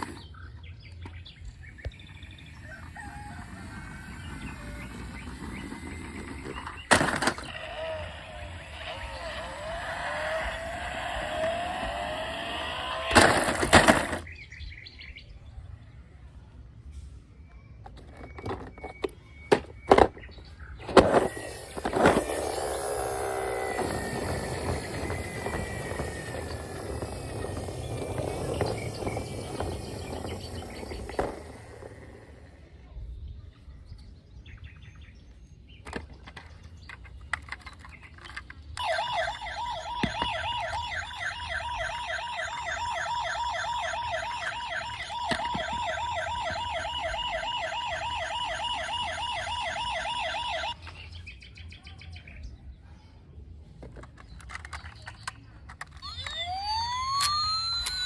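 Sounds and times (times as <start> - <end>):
toy siren warbling: 2.6 - 14.3, 20.8 - 32.6, 38.8 - 51.0, 55.8 - 58.0.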